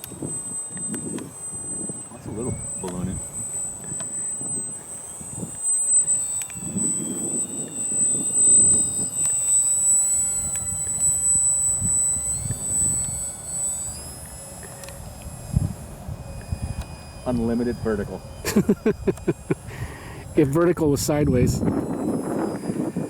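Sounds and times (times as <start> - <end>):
model plane motor whine: 0.0 - 23.0
wind buffeting microphone: 0.0 - 23.0.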